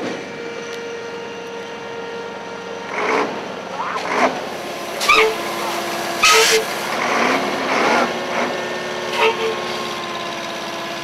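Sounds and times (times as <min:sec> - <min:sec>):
engine running steadily: 0:00.0 - 0:11.0
people shouting: 0:05.0 - 0:06.7.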